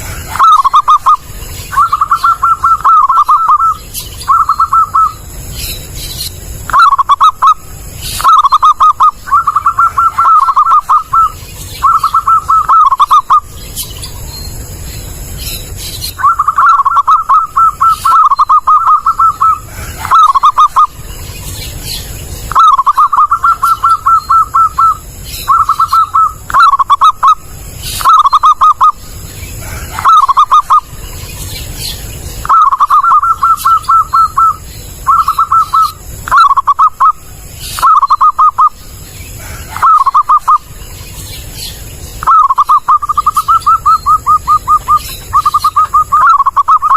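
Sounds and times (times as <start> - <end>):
dove cooing: 0.0 - 5.5, 6.5 - 14.2, 16.0 - 31.0, 31.6 - 40.8, 42.2 - 46.9.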